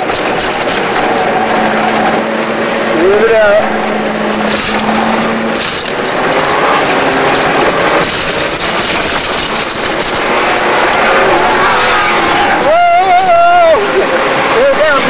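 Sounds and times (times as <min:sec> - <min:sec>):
car engine running hard: 0:00.0 - 0:15.0
road and wind noise: 0:00.0 - 0:15.0.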